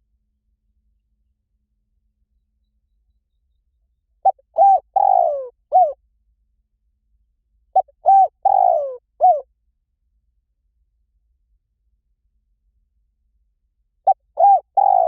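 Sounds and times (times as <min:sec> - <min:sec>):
dove cooing: 0:04.2 - 0:06.0, 0:07.8 - 0:09.4, 0:14.1 - 0:15.0.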